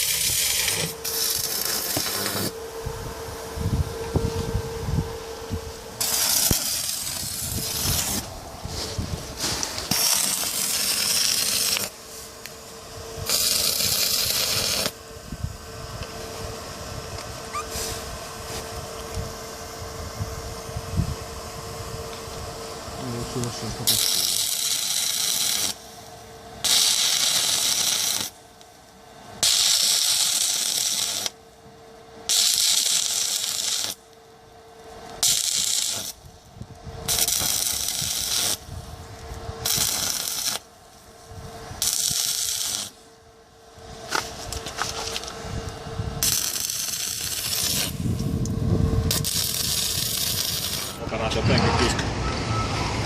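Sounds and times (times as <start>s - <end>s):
power tool hissing whine: 0.0s - 34.1s, 34.7s - 53.0s.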